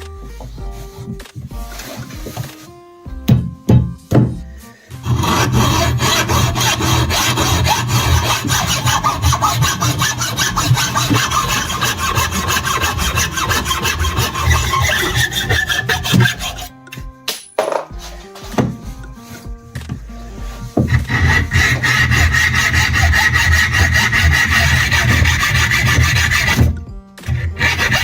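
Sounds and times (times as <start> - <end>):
rapid scraping strokes: 5.0 - 16.7, 20.8 - 26.7.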